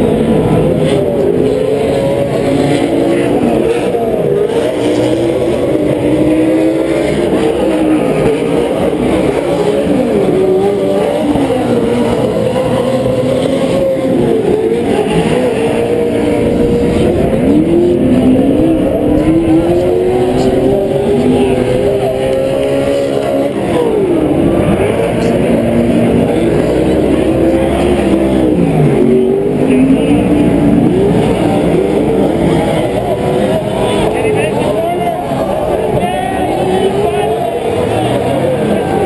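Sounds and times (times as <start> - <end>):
racing truck engines revving: 0.0 - 39.0.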